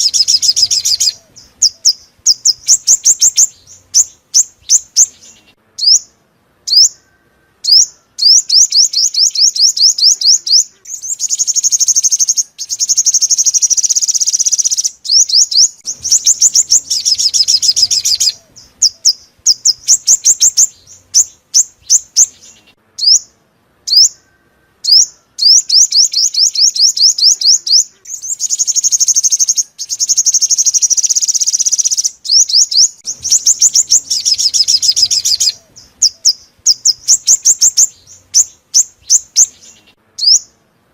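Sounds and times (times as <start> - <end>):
bird buzzy trills: 0.0 - 40.6
bird singing high sweeping notes: 0.0 - 40.6.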